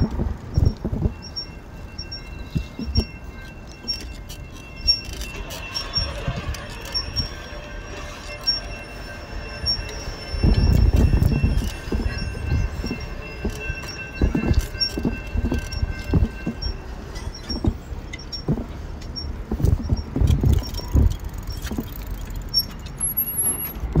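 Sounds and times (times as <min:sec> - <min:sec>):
wind buffeting microphone: 0:00.0 - 0:03.3, 0:09.3 - 0:22.6
crossing bell dinging: 0:00.0 - 0:24.0
train wheel squeal: 0:00.0 - 0:24.0.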